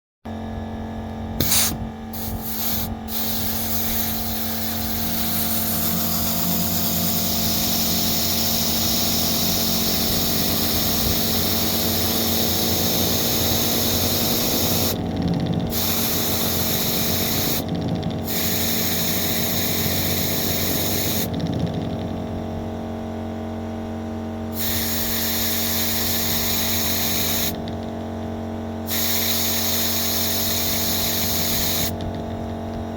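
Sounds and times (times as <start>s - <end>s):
air hissing: 1.4s - 15.0s, 15.7s - 21.4s, 24.5s - 27.6s, 28.9s - 32.0s
model air engine running: 1.4s - 22.3s, 24.5s - 27.9s, 28.8s - 32.5s.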